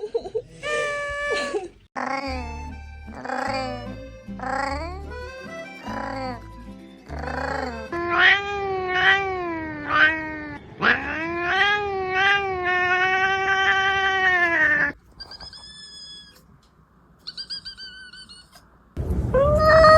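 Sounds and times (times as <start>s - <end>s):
cat yowling: 5.8s - 6.4s, 7.1s - 16.4s
high thin cries: 17.2s - 18.6s.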